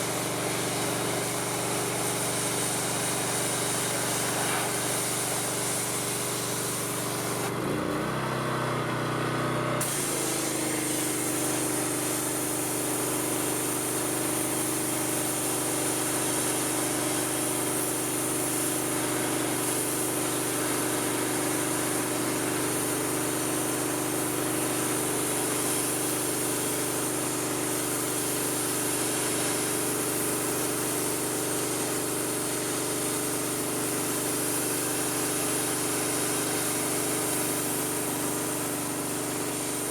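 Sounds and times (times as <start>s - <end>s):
pressure washer engine drone: 0.0s - 39.9s
water spray hissing: 9.8s - 39.9s.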